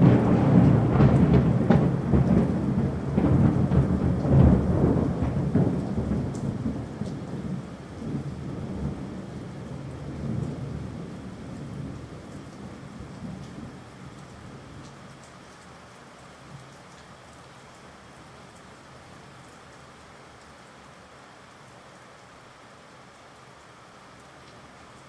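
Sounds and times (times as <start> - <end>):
thunder rolling: 0.0 - 13.8
steady rain: 0.0 - 25.0.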